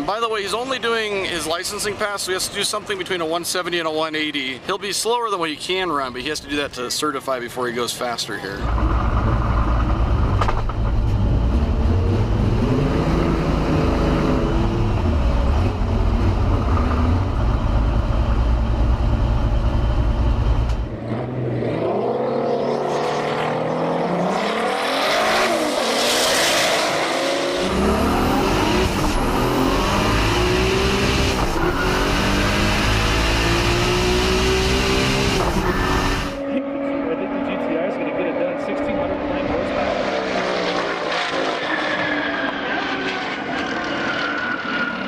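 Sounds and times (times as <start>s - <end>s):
car engine revving hard: 11.1s - 17.5s, 20.8s - 43.9s.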